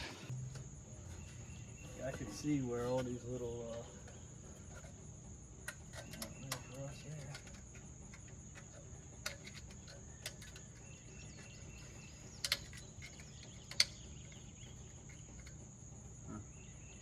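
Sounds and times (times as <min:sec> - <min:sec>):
crickets chirring: 0:00.2 - 0:17.0.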